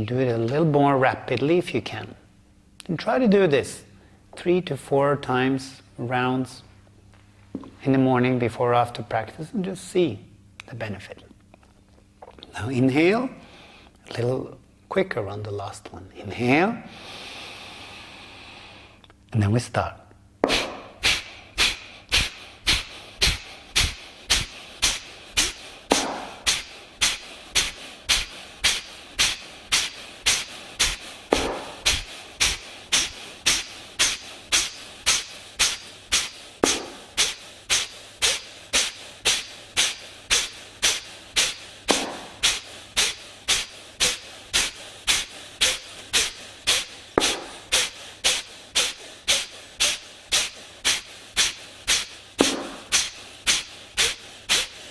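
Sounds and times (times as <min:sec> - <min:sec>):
forceful nasal exhalations: 0:20.4 - 0:54.9.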